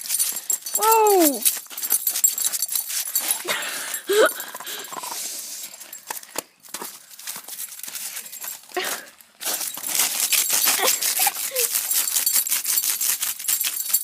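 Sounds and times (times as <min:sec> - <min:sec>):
dog scratching at ice: 0:09.4 - 0:14.0.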